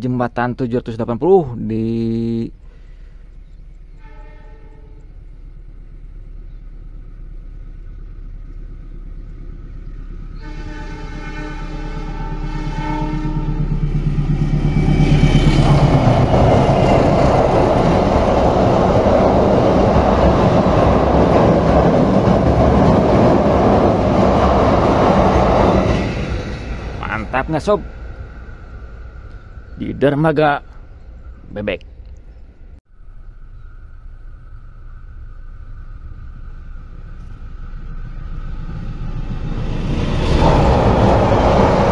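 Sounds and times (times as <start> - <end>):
train rumbling over bridge: 0.3 - 41.9
train horn blast: 3.9 - 5.3, 10.3 - 14.0.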